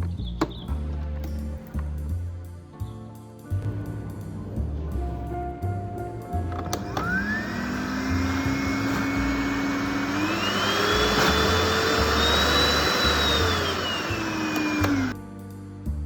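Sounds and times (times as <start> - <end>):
vacuum cleaner motor whining: 6.6 - 15.2
vacuum cleaner switch click: 6.7 - 15.1.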